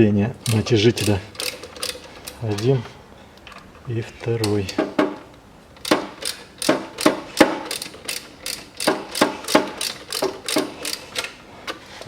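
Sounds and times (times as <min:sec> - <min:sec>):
ratchet wrench clicking: 0:00.4 - 0:02.7, 0:04.4 - 0:11.4.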